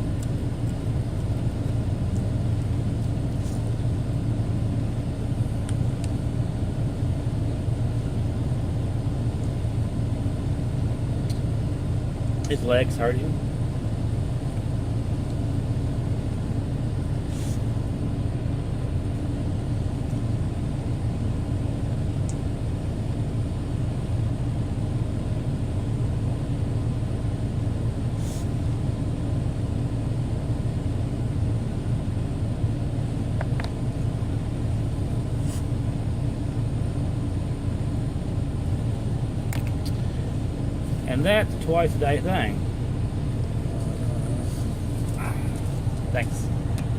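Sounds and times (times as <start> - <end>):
truck engine rumble: 0.0 - 46.9.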